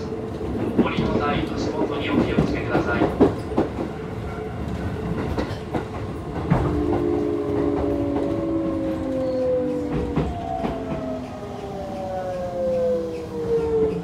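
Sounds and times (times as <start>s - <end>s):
train inverter whine: 6.4s - 14.0s.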